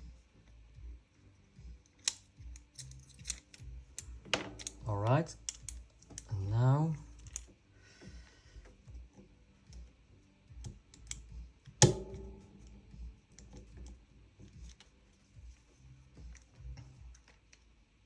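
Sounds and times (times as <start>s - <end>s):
small gun parts clicking: 1.8s - 6.3s, 7.1s - 7.5s, 10.6s - 12.0s
sharp metal clack with ring: 11.8s - 13.1s.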